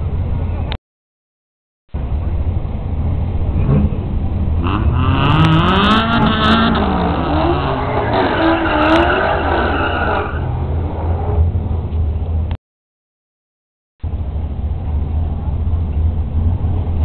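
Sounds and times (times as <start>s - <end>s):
low engine rumble: 0.0s - 0.8s, 1.9s - 12.6s, 14.0s - 17.0s
drag car engines revving: 2.0s - 12.4s.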